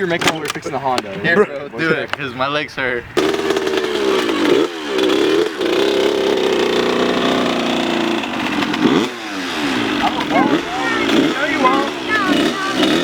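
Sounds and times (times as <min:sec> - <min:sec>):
dirt bike engine revving: 0:03.2 - 0:13.0.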